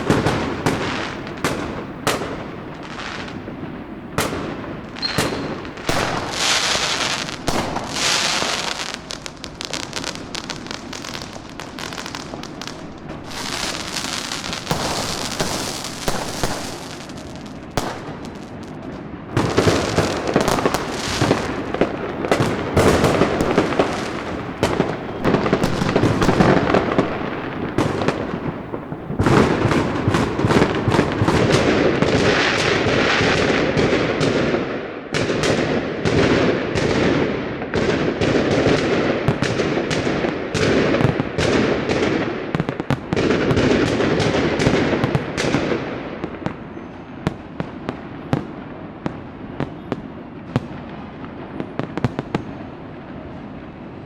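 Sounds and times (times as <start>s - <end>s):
fireworks and firecrackers bangs: 0.0s - 54.0s.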